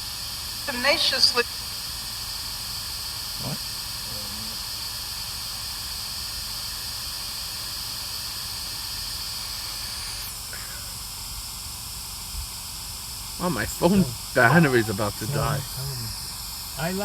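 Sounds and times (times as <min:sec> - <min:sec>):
steady hiss: 0:13.3 - 0:17.0
person speaking a word: 0:13.4 - 0:16.2.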